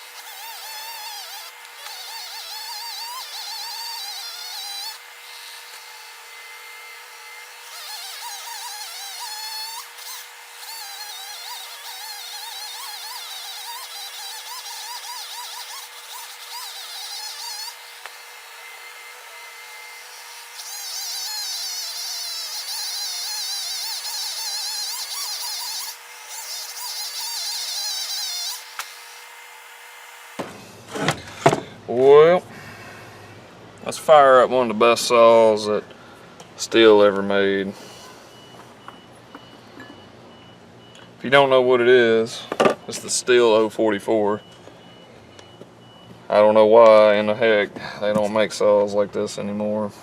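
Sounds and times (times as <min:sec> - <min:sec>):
chainsaw cutting at high revs: 0:00.0 - 0:30.4.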